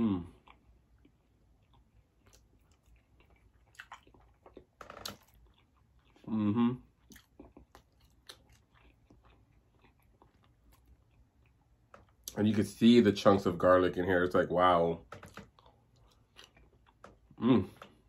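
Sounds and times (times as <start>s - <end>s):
wet chewing and lip smacks: 0.4s - 6.3s, 6.9s - 12.4s
person humming: 6.3s - 6.8s, 17.4s - 17.8s.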